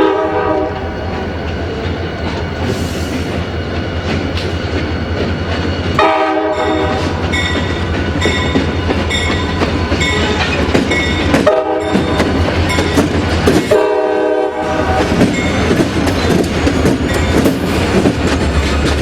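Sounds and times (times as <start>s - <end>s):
train horn: 0.0s - 0.9s, 5.9s - 7.4s, 11.3s - 12.4s, 13.7s - 15.2s
train rumbling past: 0.0s - 19.0s
bell ringing: 6.6s - 13.0s.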